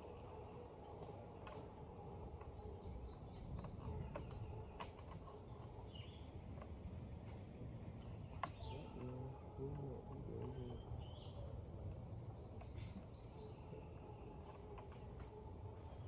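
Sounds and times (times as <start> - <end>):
songbird chirping: 0.0 - 16.0.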